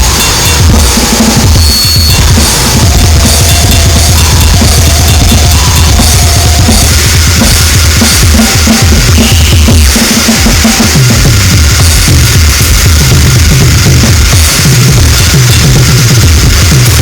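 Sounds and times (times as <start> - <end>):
held tones: 0.0 - 11.2
distorted electronic noise: 0.0 - 17.0
rapid pounding drumming: 0.0 - 17.0.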